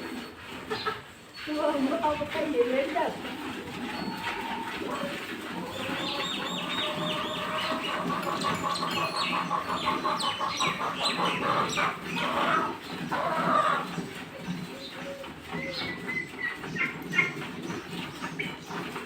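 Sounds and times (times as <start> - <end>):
birds chirping: 0.2 - 19.0
bird trill: 5.7 - 12.3.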